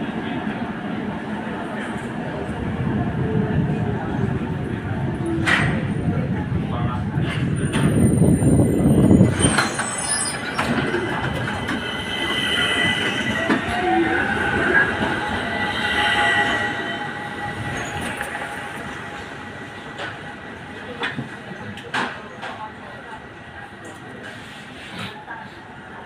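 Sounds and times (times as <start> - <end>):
tram rumbling along rails: 0.0 - 26.0
tram wheels squealing: 7.6 - 21.6.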